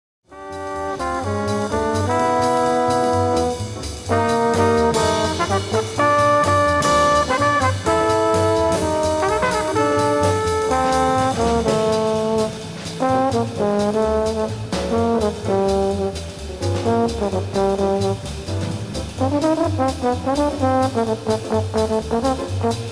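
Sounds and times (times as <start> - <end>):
drums with ride cymbal: 0.3 - 22.9
jazz trombone solo: 0.3 - 22.9
walking double bass: 0.3 - 22.9.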